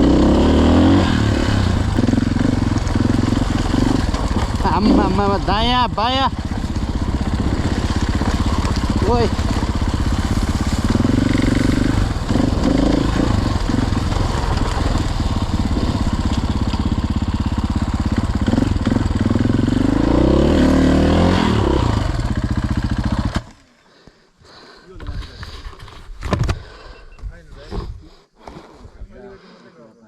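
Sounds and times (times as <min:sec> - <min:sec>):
dirt bike engine revving: 0:00.0 - 0:23.6.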